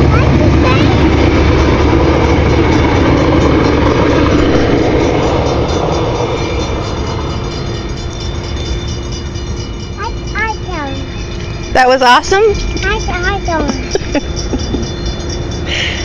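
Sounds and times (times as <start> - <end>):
train passing on rails: 0.0 - 16.0.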